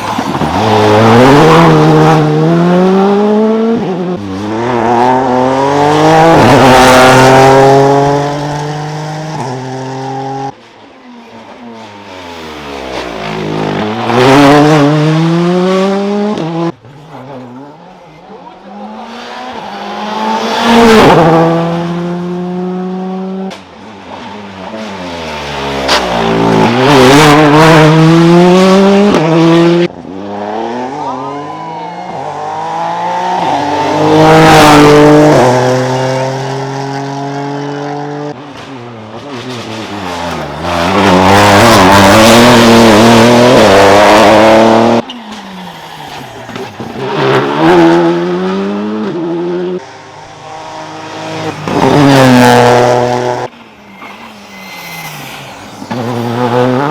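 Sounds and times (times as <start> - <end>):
rally car engines revving: 0.0 - 56.9
tyre squeal: 45.0 - 47.8, 51.2 - 56.9.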